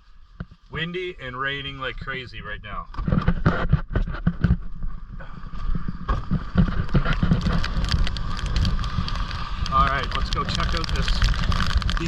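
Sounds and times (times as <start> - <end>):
wind buffeting microphone: 3.0 - 12.0
rain: 5.2 - 12.0.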